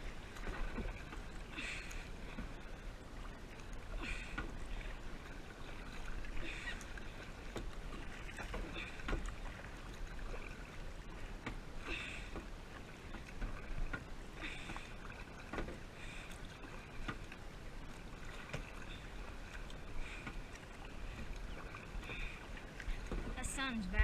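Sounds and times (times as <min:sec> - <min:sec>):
paddle splashing in water: 0:00.0 - 0:24.0
water drips and knocks: 0:07.5 - 0:10.4, 0:13.1 - 0:15.8, 0:17.0 - 0:17.4, 0:21.1 - 0:24.0.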